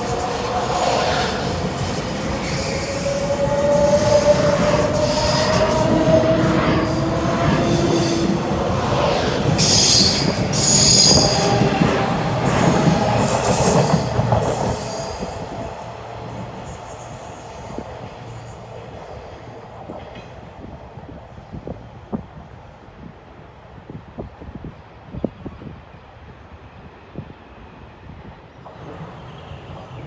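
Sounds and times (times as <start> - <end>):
train wheels squealing on rails: 0.0 - 8.4, 9.0 - 18.9, 28.5 - 30.0.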